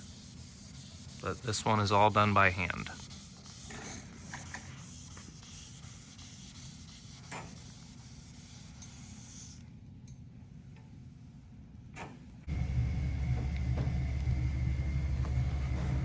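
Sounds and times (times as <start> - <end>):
sandpaper rubbing on paint: 0.0 - 9.6.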